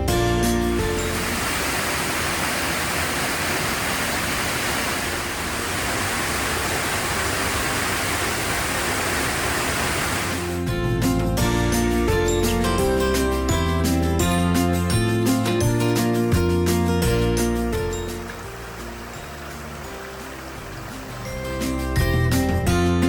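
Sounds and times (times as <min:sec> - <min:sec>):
rushing water: 0:00.0 - 0:10.7, 0:17.4 - 0:22.2
background music: 0:10.6 - 0:23.0.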